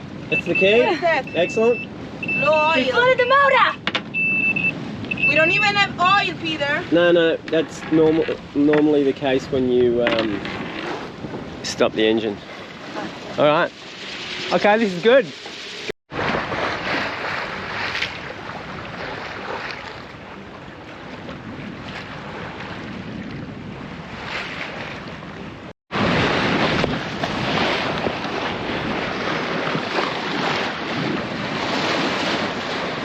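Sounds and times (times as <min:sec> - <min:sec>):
water splashing along a hull: 0:00.0 - 0:33.0
wind buffeting microphone: 0:01.2 - 0:14.8, 0:16.2 - 0:33.0.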